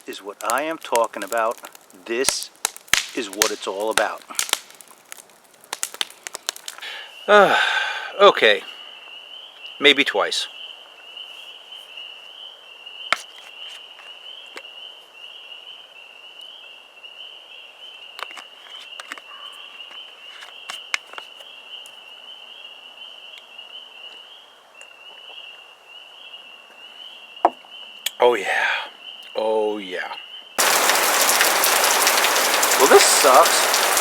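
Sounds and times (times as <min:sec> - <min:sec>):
chorus of frogs calling: 0:30.6 - 0:34.0.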